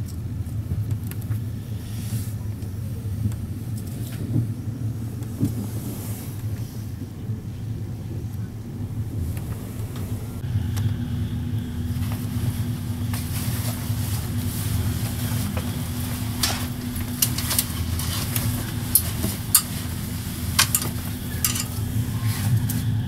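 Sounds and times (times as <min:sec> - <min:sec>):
constant hum: 0:00.0 - 0:23.0
train wheels rumbling on rails: 0:00.0 - 0:23.0
sharp clicks and rattles: 0:15.0 - 0:22.0.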